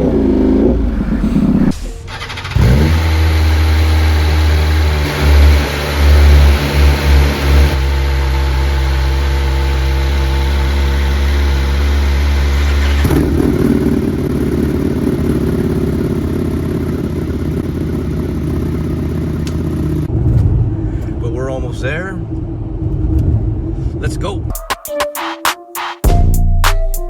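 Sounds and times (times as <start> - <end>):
motorcycle engine running: 0.0 - 20.1.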